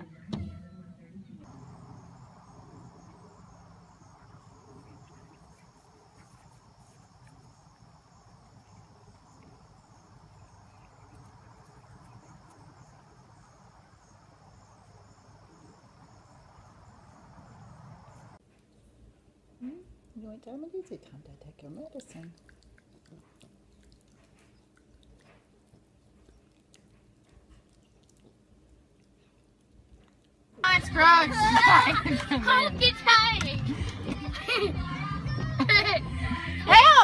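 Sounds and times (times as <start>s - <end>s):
low background hum: 0.0s - 37.0s
insect chirring: 1.4s - 18.4s.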